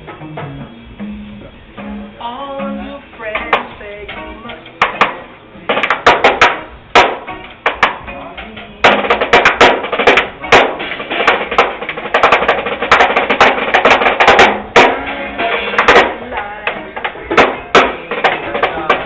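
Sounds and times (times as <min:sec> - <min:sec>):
band playing: 0:00.0 - 0:19.0
drum kit hits: 0:03.3 - 0:19.0.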